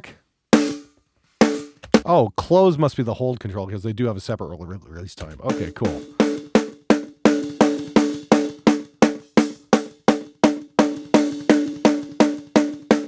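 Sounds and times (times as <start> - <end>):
gated snare drum hits: 0.6 - 2.2, 5.3 - 13.0.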